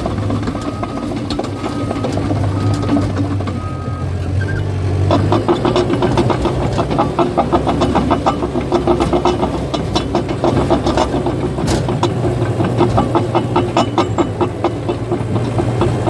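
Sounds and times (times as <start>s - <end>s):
steel tracks clattering: 0.0s - 4.3s, 4.9s - 16.0s
diesel engine running: 0.0s - 16.0s.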